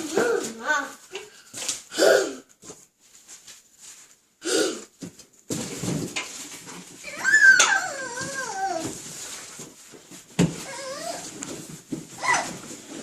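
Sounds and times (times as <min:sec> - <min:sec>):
child grunting: 0:01.9 - 0:02.5
cardboard rustling and scraping: 0:05.0 - 0:13.0.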